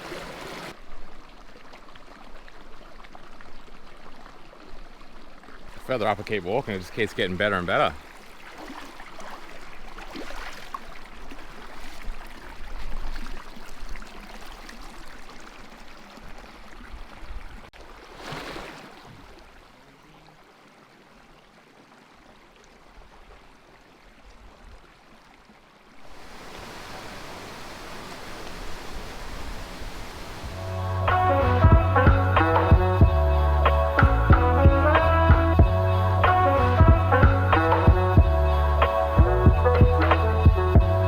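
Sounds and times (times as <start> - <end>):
water rushing over rocks: 0.0 - 1.1, 26.0 - 31.8.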